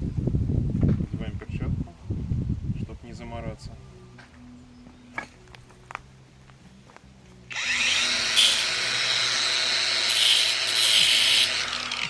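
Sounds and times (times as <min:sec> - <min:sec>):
angle grinder grinding metal rod: 0:07.5 - 0:12.0.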